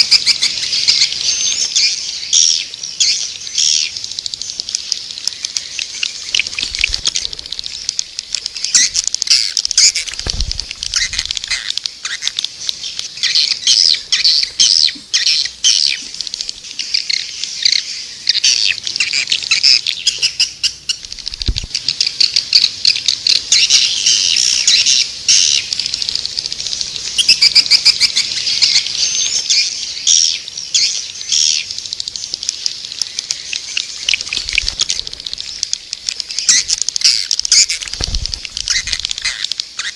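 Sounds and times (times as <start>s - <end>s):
swiftlets twittering chorus: 0.0s - 21.0s, 21.8s - 39.9s
low thumps: 10.0s - 11.5s.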